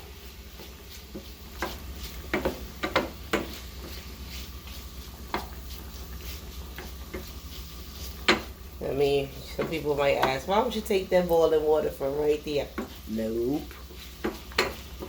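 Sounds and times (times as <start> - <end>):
pots and pans clanking: 1.2 - 4.0, 13.7 - 15.0.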